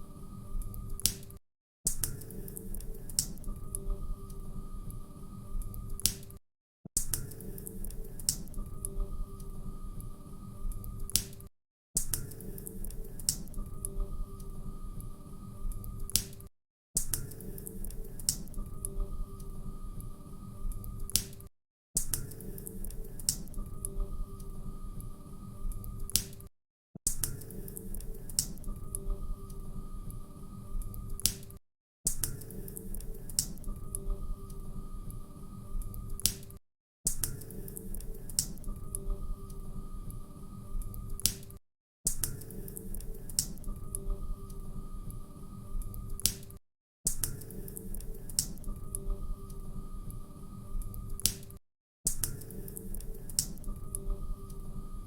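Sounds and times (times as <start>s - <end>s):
faint steady hum: 2.3s - 6.1s, 22.6s - 26.1s.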